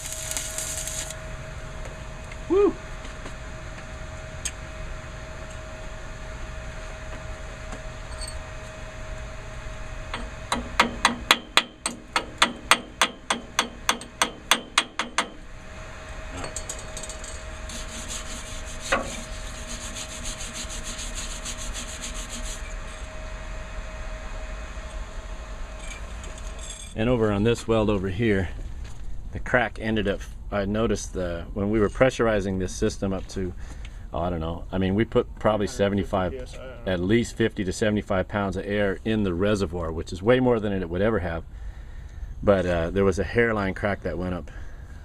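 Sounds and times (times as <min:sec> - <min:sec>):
fine scraping on metal: 0:00.0 - 0:01.1, 0:17.0 - 0:23.1
hammer striking metal: 0:10.2 - 0:15.4.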